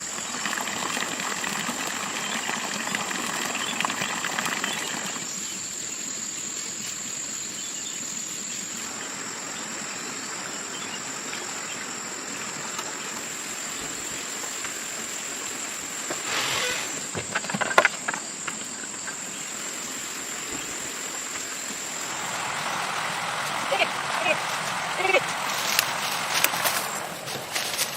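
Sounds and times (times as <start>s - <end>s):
insects droning: 0.0s - 27.9s
rustling and clicks: 25.5s - 27.9s.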